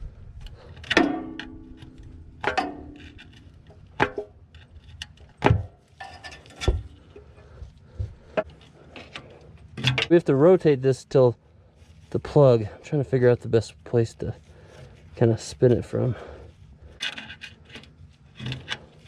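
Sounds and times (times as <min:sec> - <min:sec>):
metal tools clanking: 0:06.0 - 0:07.5
tools clicking and knocking: 0:08.4 - 0:10.1.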